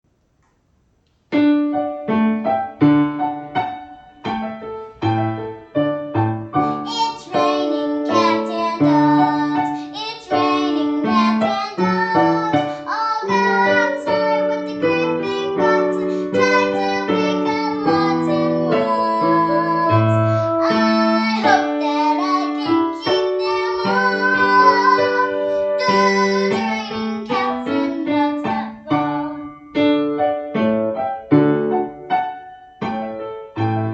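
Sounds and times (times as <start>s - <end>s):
piano accompaniment: 1.3s - 33.9s
girl singing: 6.5s - 30.0s.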